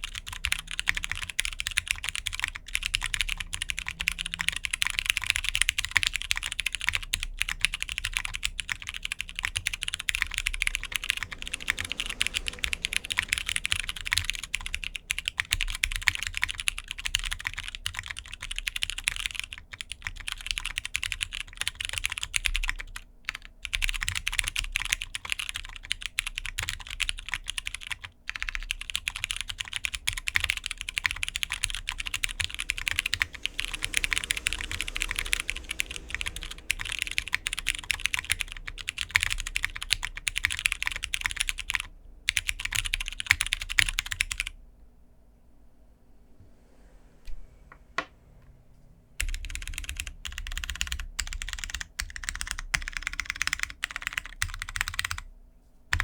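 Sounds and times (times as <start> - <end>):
mechanical keyboard typing: 0.0 - 44.5, 49.2 - 55.2.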